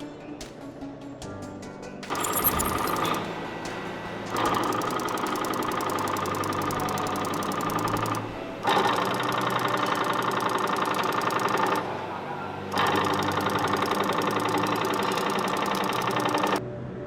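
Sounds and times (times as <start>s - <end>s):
production line machine clattering: 2.1s - 16.6s.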